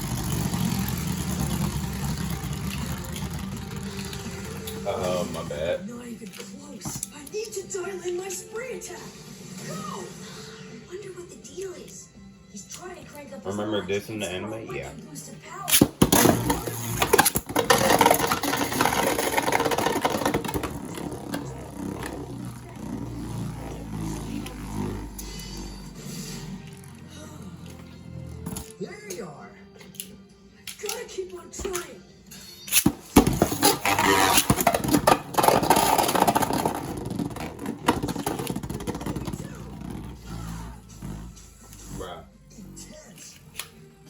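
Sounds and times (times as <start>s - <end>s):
spinning tops whirring and grinding: 0.0s - 5.2s, 16.0s - 27.0s, 32.7s - 40.2s.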